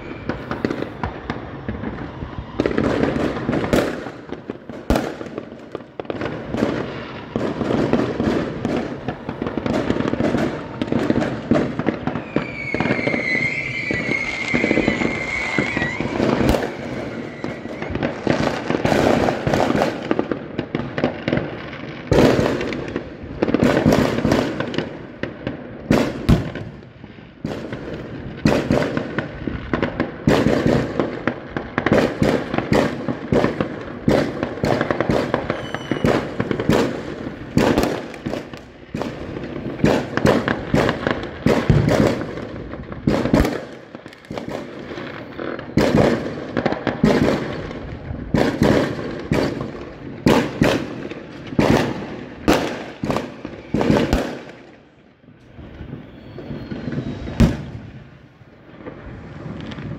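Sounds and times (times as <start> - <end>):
firecracker strings crackling: 0.0 - 26.9, 27.6 - 56.0
fireworks bangs: 0.0 - 59.9.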